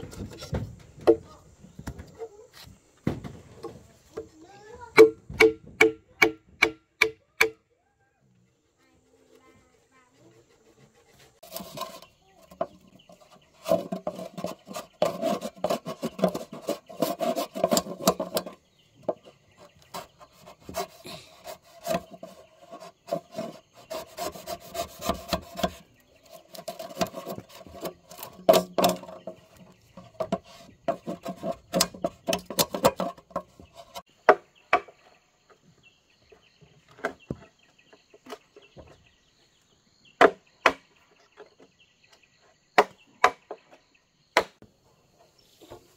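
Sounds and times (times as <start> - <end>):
hand tool rasping wood: 9.1 - 34.1.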